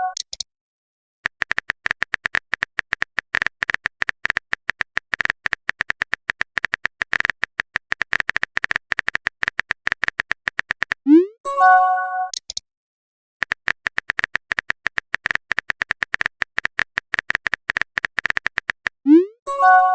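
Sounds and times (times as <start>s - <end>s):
phone keyboard typing clicks: 1.2s - 11.0s, 13.4s - 19.0s.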